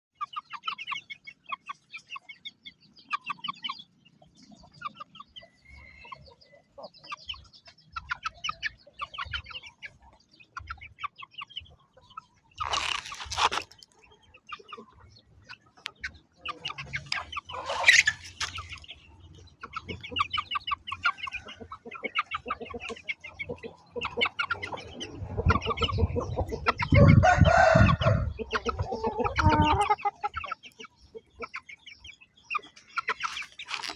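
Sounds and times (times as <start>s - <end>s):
chickens clucking: 0.2s - 33.9s
low rustling and scuffling: 12.6s - 13.8s.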